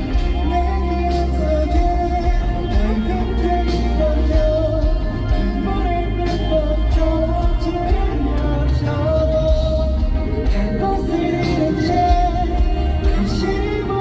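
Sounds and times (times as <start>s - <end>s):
heavy bass line: 0.0s - 14.0s
live pop-rock band: 0.0s - 14.0s
person singing: 0.0s - 14.0s.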